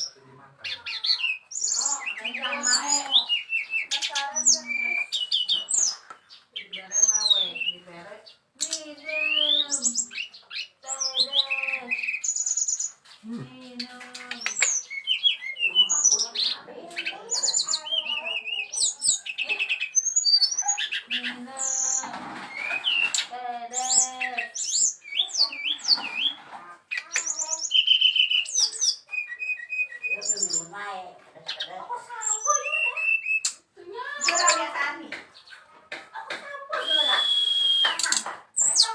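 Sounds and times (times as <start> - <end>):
bird singing whistles and trills: 0.9 - 7.8, 8.7 - 13.0, 14.4 - 16.3, 17.0 - 26.3, 27.1 - 30.7, 32.2 - 33.6, 36.8 - 38.9.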